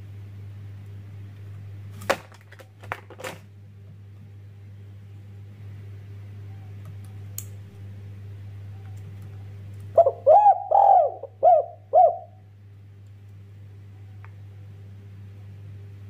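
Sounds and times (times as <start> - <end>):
faint steady hum: 0.0 - 16.0
dove cooing: 9.9 - 12.4.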